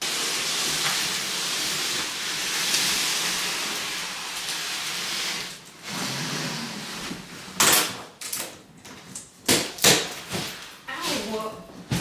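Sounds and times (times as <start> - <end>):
steady hiss: 0.0 - 5.9.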